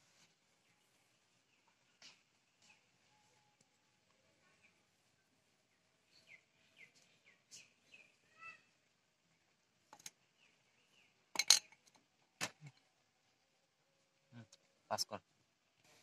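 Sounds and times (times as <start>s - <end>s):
small bird chirping: 0.5s - 12.0s.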